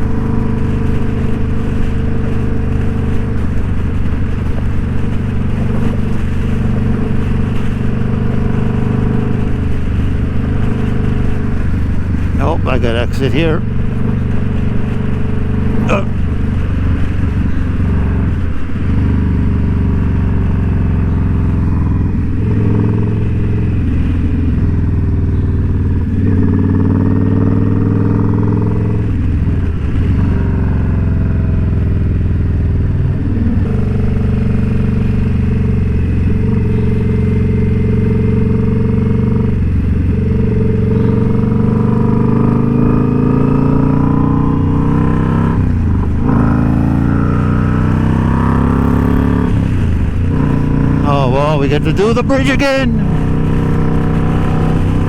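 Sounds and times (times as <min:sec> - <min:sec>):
motorcycle engine under way: 0:13.7 - 0:51.1.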